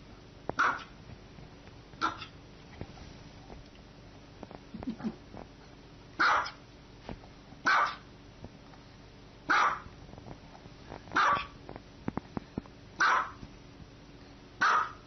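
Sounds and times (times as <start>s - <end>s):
dog barking: 0.6s - 1.0s, 2.0s - 2.3s, 6.2s - 6.6s, 7.6s - 8.1s, 9.5s - 9.9s, 11.2s - 11.6s, 13.0s - 13.4s, 14.6s - 15.0s.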